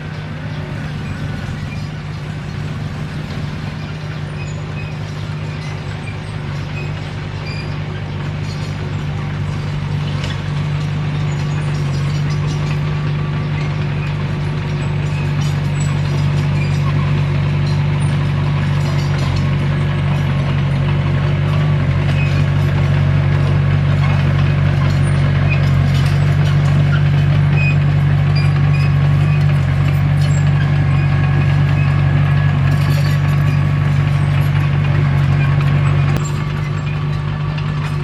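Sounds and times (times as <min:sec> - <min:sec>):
bulldozer diesel engine running: 0:00.0 - 0:38.0.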